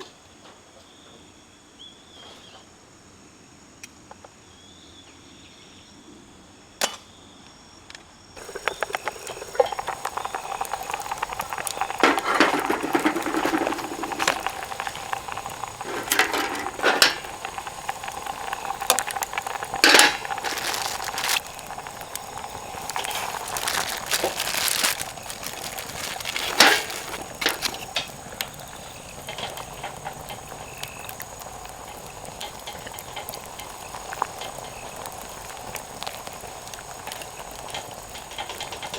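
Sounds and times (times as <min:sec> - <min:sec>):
insects chirping: 0:07.1 - 0:38.9
wood fire crackling and popping: 0:08.4 - 0:38.9.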